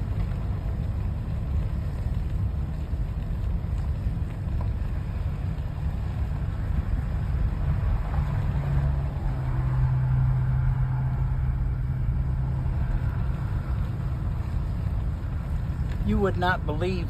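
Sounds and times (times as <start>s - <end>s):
low engine hum: 0.0s - 17.0s
motor vehicle rumble: 0.0s - 17.0s.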